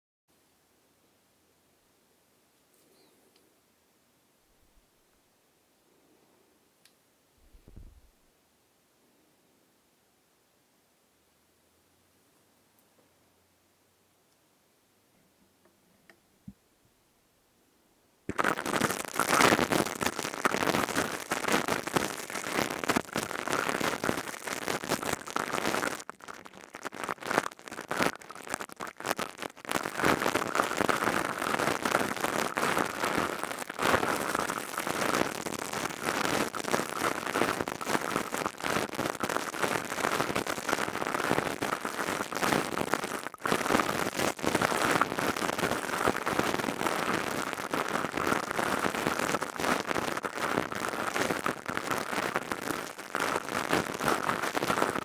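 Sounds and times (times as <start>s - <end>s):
crackling against microphone: 7.4s - 8.2s, 18.3s - 55.0s.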